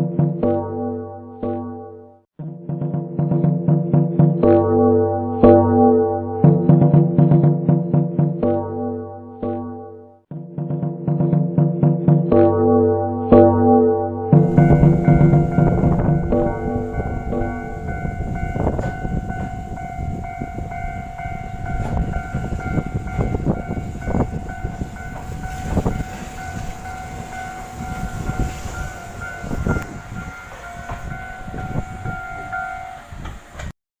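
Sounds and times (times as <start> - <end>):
high whine: 14.3 - 33.7
train low rumble: 14.4 - 33.7
wheels clacking: 14.4 - 33.7.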